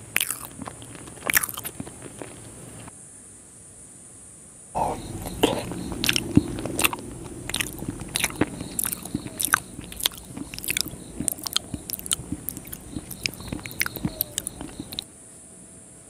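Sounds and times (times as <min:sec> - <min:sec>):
sticky mouth clicks and smacks: 0:00.0 - 0:02.5, 0:04.8 - 0:15.1
faint steady hiss: 0:00.0 - 0:16.0.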